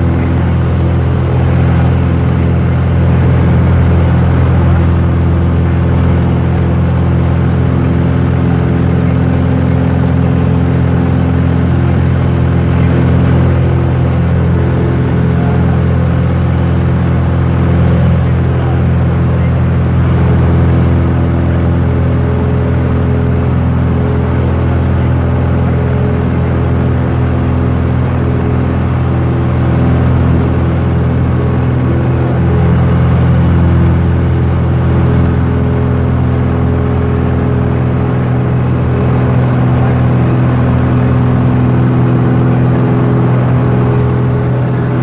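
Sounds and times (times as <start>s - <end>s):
propeller plane engine droning: 0.0s - 45.0s.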